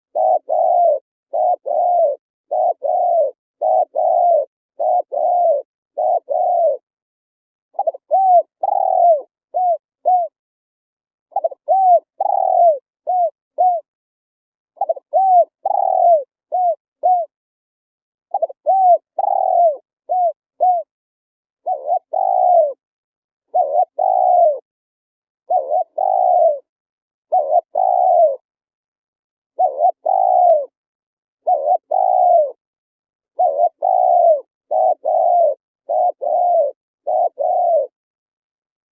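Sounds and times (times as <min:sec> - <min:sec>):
dove cooing: 0:00.0 - 0:06.8, 0:07.7 - 0:10.4, 0:11.3 - 0:13.9, 0:14.8 - 0:17.3, 0:18.3 - 0:20.9, 0:21.6 - 0:22.8, 0:23.5 - 0:24.7, 0:25.5 - 0:26.7, 0:27.3 - 0:28.5, 0:29.6 - 0:30.8, 0:31.4 - 0:32.6, 0:33.3 - 0:38.0.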